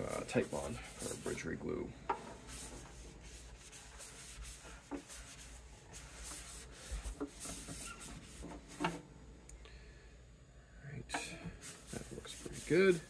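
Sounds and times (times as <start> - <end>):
rubbing on wooden guitar body: 0.0 - 1.5, 2.2 - 9.0, 11.2 - 13.0.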